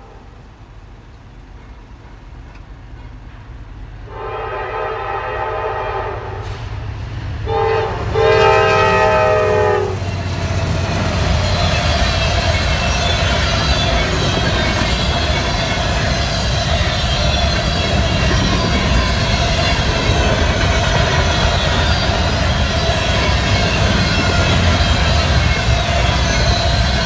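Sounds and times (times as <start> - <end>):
diesel locomotive rumble: 0.0 - 27.0
train air horn blasts: 4.1 - 6.7, 7.4 - 10.1
freight cars rumbling and rattling: 9.2 - 27.0.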